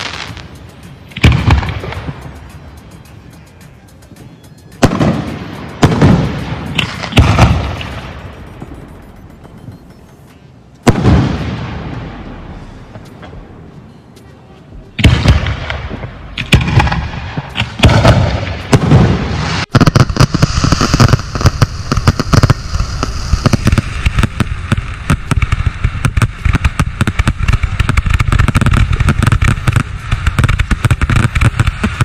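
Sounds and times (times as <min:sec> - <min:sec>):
firework crackling barrage: 0:00.0 - 0:03.3, 0:04.7 - 0:09.2, 0:10.8 - 0:13.0, 0:15.0 - 0:32.0
firework shell bursts: 0:16.4 - 0:32.0.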